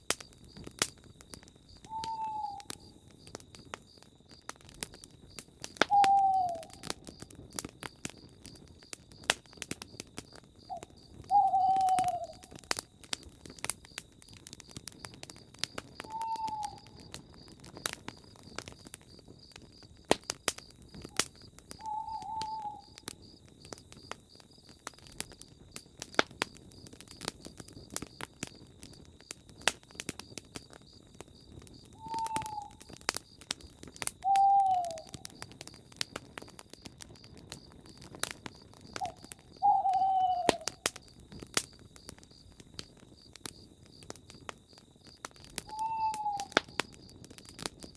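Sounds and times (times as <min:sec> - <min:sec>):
campfire crackling and popping: 0:00.0 - 0:47.9
pulsing insect chirp: 0:00.2 - 0:47.9
owl hooting: 0:01.9 - 0:02.7, 0:05.9 - 0:06.8, 0:10.7 - 0:12.5, 0:16.0 - 0:17.0, 0:21.8 - 0:23.1, 0:32.0 - 0:32.8, 0:34.2 - 0:35.3, 0:39.0 - 0:40.8, 0:45.6 - 0:46.6.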